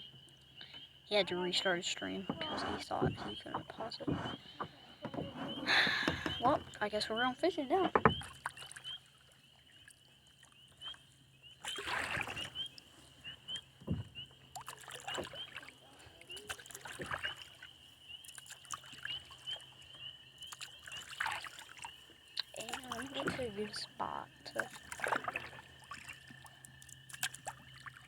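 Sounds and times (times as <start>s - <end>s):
paddle strokes splashing: 1.2s - 6.8s, 11.6s - 28.0s.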